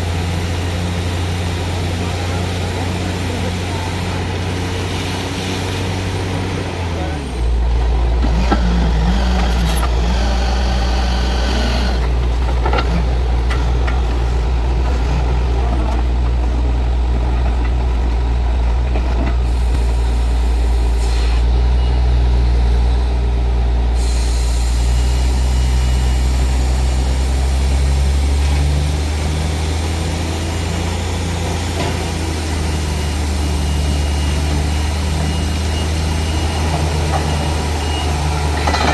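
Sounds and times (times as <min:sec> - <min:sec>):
drilling rig droning: 0:00.0 - 0:38.9.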